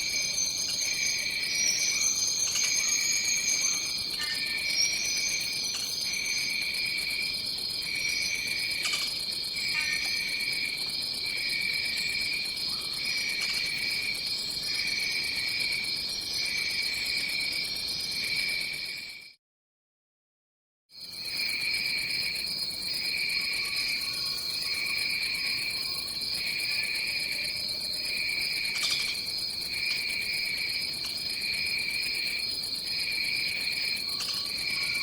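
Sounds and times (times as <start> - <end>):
pulsing lower insect trill: 0.0 - 10.8, 22.9 - 35.0.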